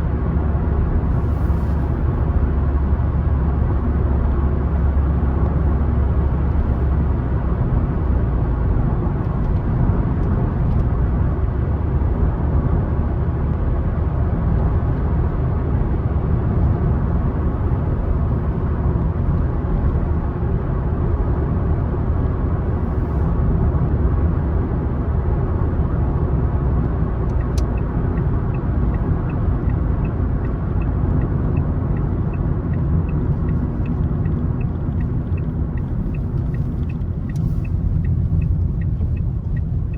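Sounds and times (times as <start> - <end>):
car tyres and engine rumbling: 0.0 - 39.9
turn signal ticking: 25.7 - 39.9.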